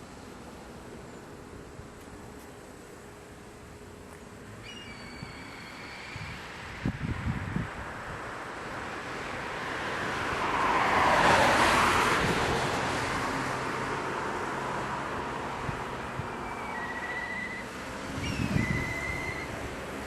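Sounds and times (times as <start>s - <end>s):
vehicle passing by: 8.8s - 16.5s.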